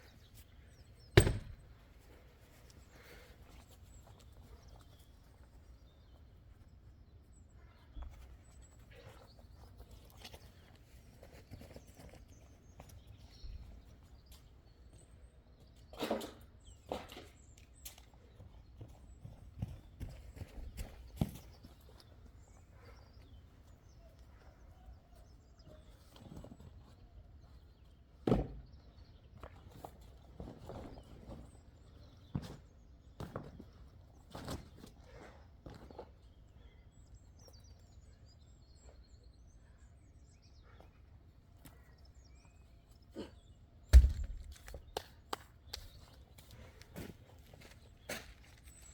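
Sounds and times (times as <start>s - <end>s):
axe chopping wood: 1.2s - 1.6s, 43.9s - 44.8s.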